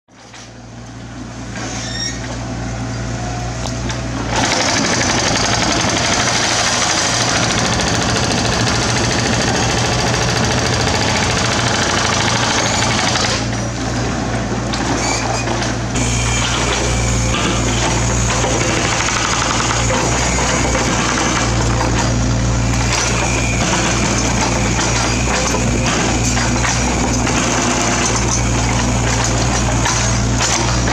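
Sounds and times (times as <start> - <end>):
diesel engine running: 2.4 - 15.0, 15.7 - 30.9
rapid rattling of machine on rock: 4.3 - 13.6, 16.4 - 30.9.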